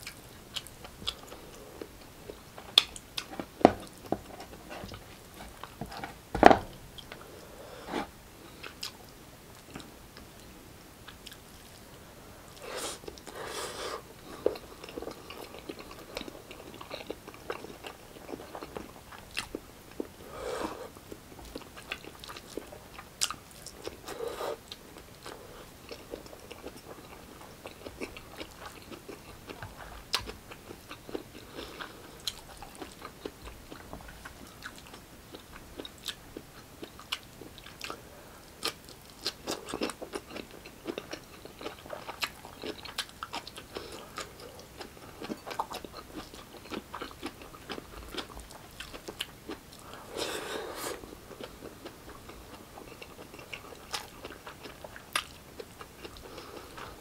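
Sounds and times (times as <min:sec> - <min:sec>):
man chewing with wet mouth smacks: 0:00.0 - 0:05.8, 0:14.3 - 0:20.2, 0:20.9 - 0:57.0.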